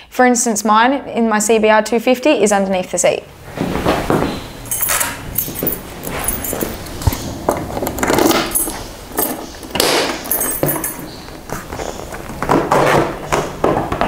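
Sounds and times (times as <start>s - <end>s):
rustling handling noises: 3.6s - 13.5s.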